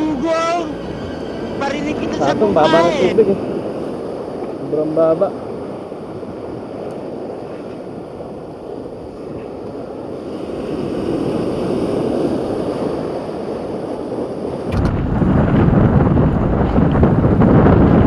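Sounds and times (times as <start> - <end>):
sea waves washing on shore: 0.0 - 18.0
wind: 0.0 - 18.0
wind buffeting microphone: 0.0 - 18.0.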